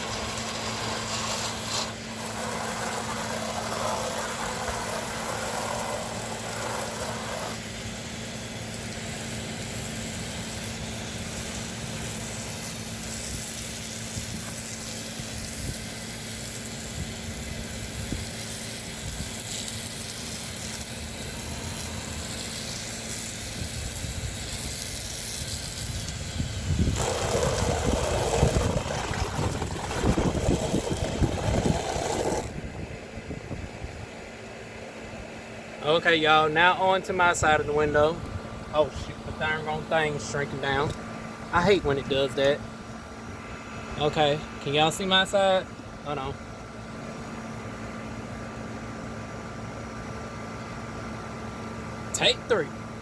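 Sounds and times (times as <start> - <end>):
pressure washer spraying water: 0.0 - 32.6
low machine hum: 0.0 - 53.0.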